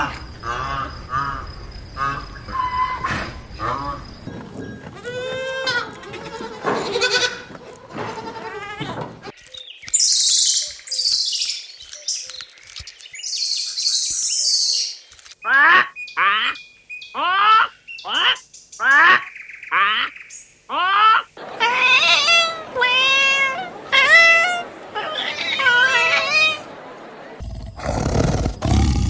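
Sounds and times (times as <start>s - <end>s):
wavering bleat-like calls: 4.9s - 9.0s, 20.7s - 26.6s.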